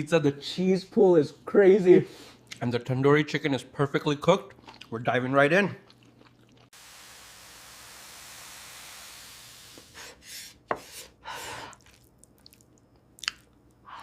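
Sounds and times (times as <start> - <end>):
steady hiss: 6.8 - 10.4.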